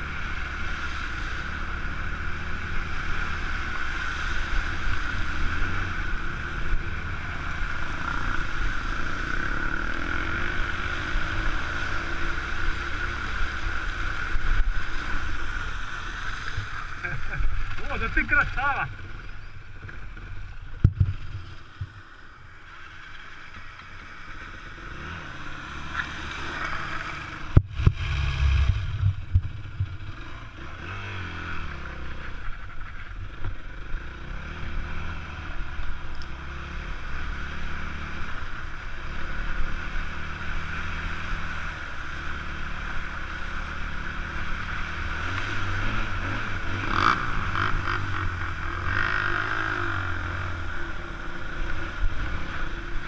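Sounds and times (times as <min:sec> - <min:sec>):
motorcycle engine running: 0:00.0 - 0:53.0
wind noise: 0:27.4 - 0:31.1.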